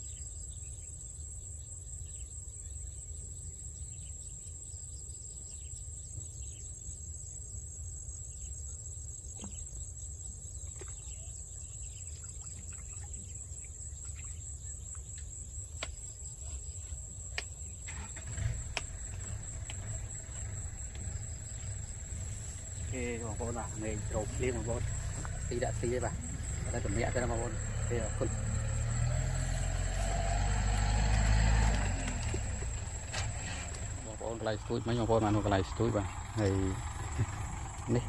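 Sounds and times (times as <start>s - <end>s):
insects trilling: 0.0s - 38.0s
low rumble: 18.6s - 38.0s.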